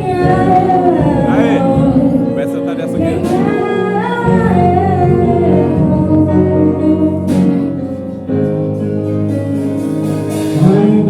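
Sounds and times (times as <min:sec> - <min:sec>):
person singing: 0:00.0 - 0:08.0, 0:10.3 - 0:11.0
band playing held chords: 0:00.0 - 0:11.0.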